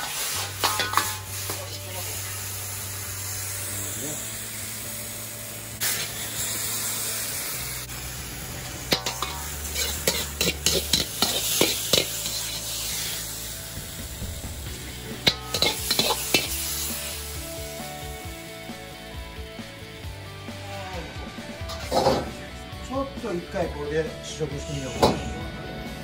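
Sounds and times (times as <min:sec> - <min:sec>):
ladle scraping and clacking wok: 0:00.0 - 0:02.2, 0:05.8 - 0:07.0, 0:08.6 - 0:17.4, 0:21.5 - 0:22.4
wok sizzling: 0:00.0 - 0:23.2
background music: 0:00.0 - 0:26.0.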